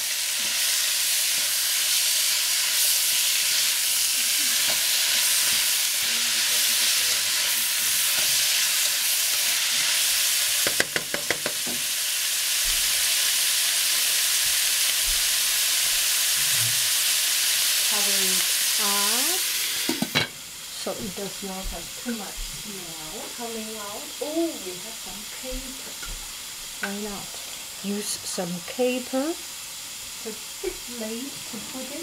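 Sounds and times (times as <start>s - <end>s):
cabbage sizzling in hot oil: 0.0s - 32.0s
spatula clacking: 10.6s - 11.8s.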